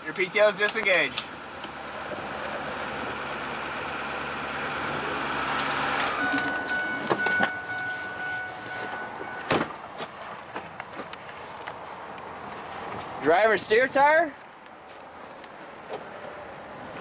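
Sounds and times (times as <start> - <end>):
truck engine running: 0.1 - 10.8
truck door shutting: 4.9 - 9.8
electronic chime tone: 6.1 - 9.5.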